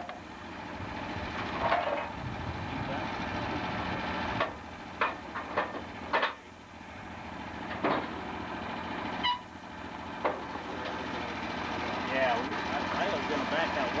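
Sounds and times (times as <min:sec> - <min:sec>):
engine running: 0:00.0 - 0:14.0
short high squeak: 0:09.2 - 0:09.5.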